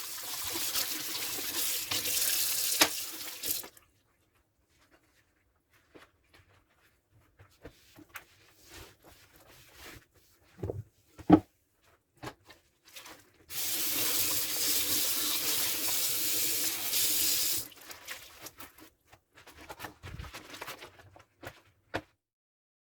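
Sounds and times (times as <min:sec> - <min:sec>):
tap water running: 0:00.0 - 0:03.8, 0:13.5 - 0:18.5.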